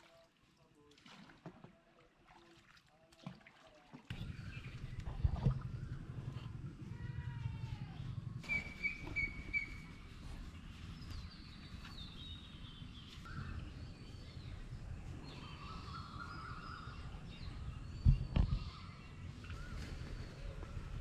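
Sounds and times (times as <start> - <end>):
small birds chirping: 4.1 - 20.8
low background rumble: 4.1 - 21.0.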